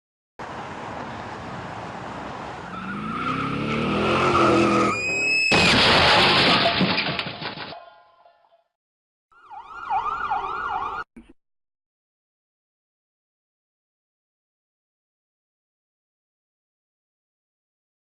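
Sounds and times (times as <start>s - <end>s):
car engine revving: 2.8s - 5.0s.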